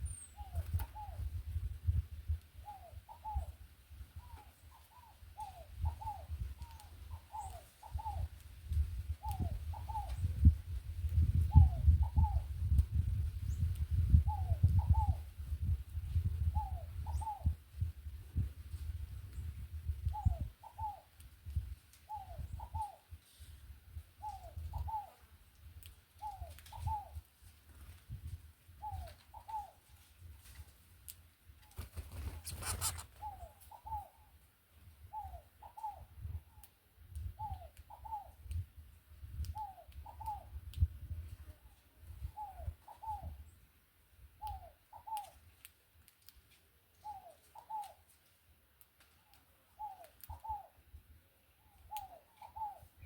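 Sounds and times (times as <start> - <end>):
dove cooing: 2.6 - 3.6, 9.2 - 10.5, 11.4 - 12.5, 14.2 - 15.2, 16.4 - 17.6, 20.1 - 21.1, 22.1 - 23.0, 24.2 - 25.2, 26.2 - 27.2, 28.8 - 29.8, 32.4 - 34.3, 35.1 - 36.3, 37.4 - 38.4, 42.2 - 43.4, 44.4 - 45.4, 47.0 - 48.0, 49.8 - 50.8, 51.9 - 53.0.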